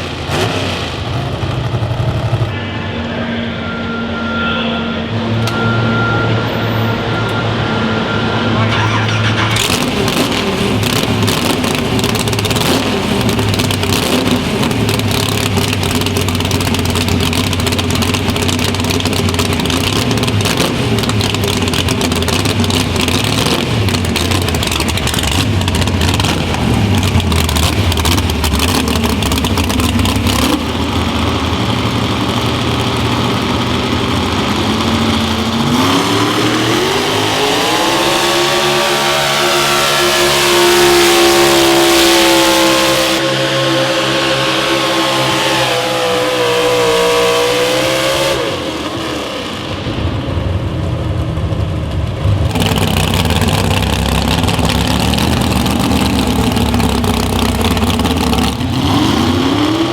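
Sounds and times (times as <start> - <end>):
vehicle engine running at high revs: 0.0 - 59.9.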